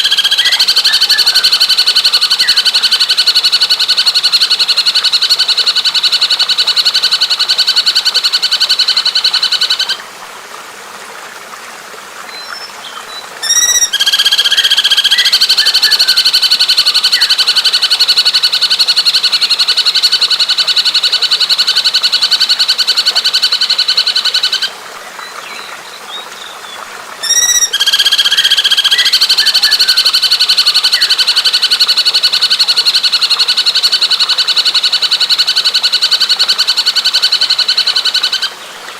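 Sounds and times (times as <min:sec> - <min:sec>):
bird stuttering call: 0:00.0 - 0:04.5, 0:13.4 - 0:24.7, 0:27.2 - 0:34.4.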